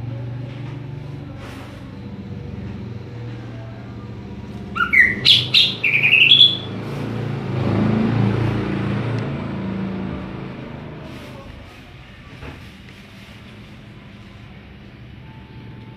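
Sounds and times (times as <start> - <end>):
bird whistling quick sliding notes: 4.8 - 6.7.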